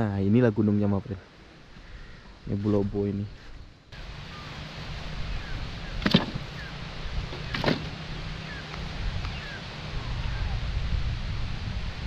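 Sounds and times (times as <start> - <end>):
sharp knocks: 6.0 - 6.5, 7.4 - 8.0.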